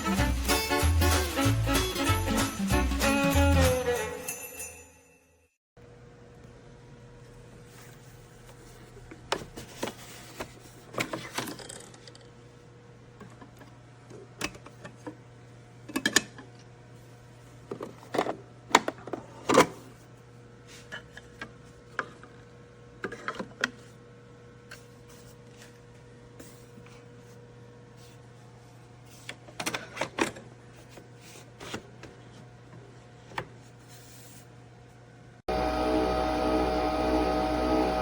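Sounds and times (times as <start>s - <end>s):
coffee machine hum: 32.6s - 38.0s.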